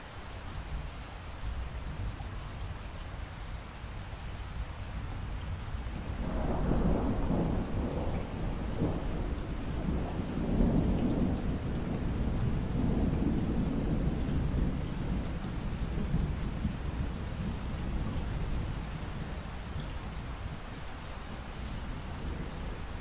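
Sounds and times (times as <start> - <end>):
steady rain: 0.0 - 23.0
thunder rolling: 6.0 - 18.9.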